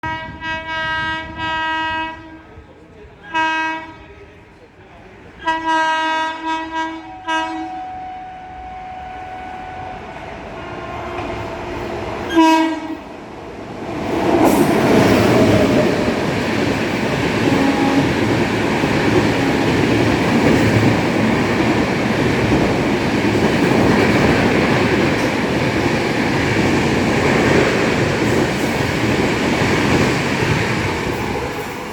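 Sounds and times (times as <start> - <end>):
train horn blasts: 0.0 - 2.5, 3.3 - 4.0, 5.4 - 11.5, 12.3 - 13.0, 17.4 - 19.9
train passing at speed: 0.0 - 31.9.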